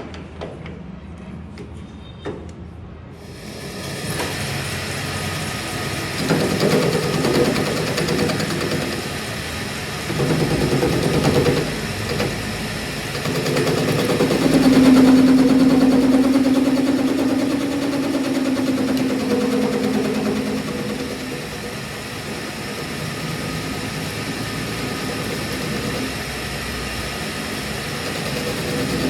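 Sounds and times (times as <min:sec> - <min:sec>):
machine motor running: 0:03.2 - 0:29.0
steady hum: 0:09.6 - 0:26.0.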